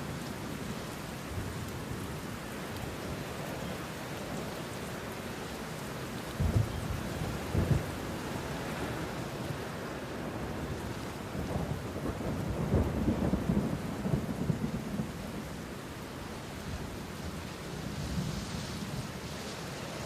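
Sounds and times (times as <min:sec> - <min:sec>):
steady rain falling: 0:00.0 - 0:20.0
thunder rumbling: 0:06.4 - 0:09.2, 0:10.3 - 0:15.8.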